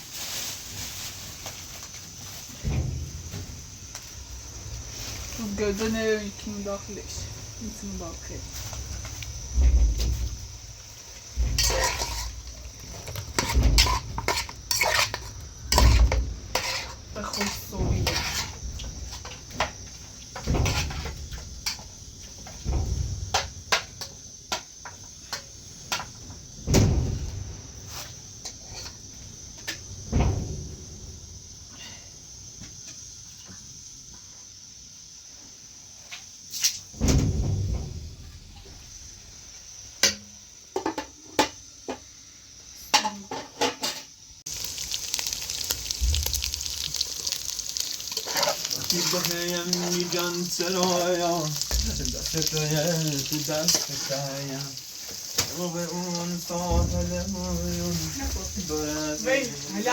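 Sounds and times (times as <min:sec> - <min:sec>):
food sizzling in oil: 0:00.0 - 0:26.6, 0:42.1 - 0:59.9
faint high-pitched hiss: 0:00.0 - 0:59.9
pots and utensils clattering: 0:11.3 - 0:27.0, 0:42.8 - 0:59.9.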